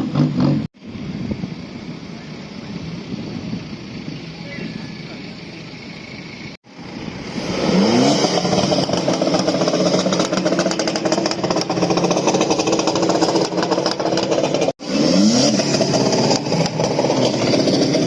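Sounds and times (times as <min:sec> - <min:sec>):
car engine revving: 0:03.7 - 0:18.0.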